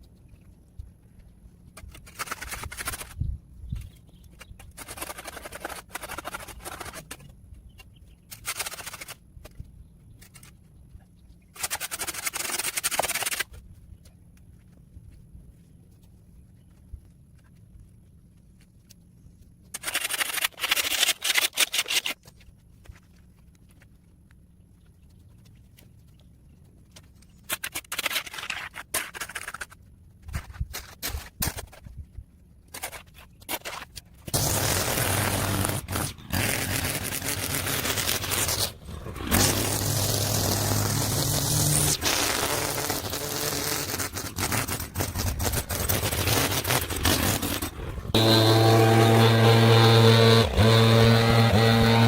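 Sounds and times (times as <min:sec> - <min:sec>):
scraping strokes: 0:32.7 - 0:52.0.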